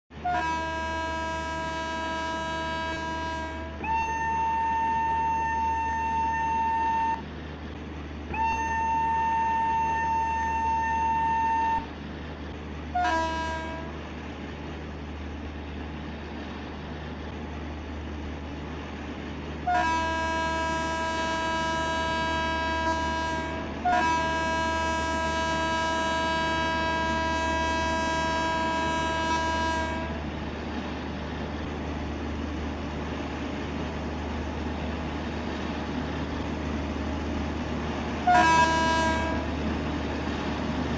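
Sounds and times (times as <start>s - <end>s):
train horn blowing: 0.2s - 7.2s, 8.3s - 11.9s, 12.9s - 14.0s, 19.6s - 30.2s, 38.1s - 39.7s
steady low rumble: 7.0s - 8.4s, 11.7s - 13.0s, 28.6s - 38.3s.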